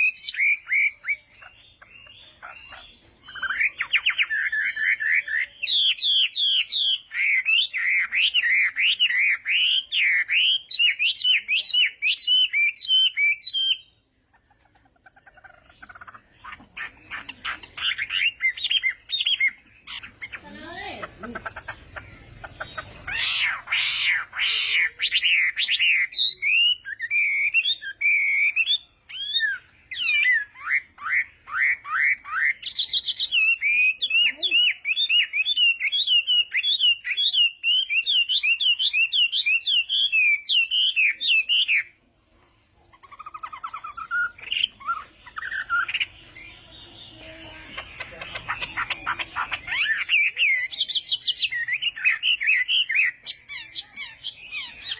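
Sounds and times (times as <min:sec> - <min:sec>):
bird singing whistled phrases: 0:03.2 - 0:14.0, 0:23.1 - 0:41.9.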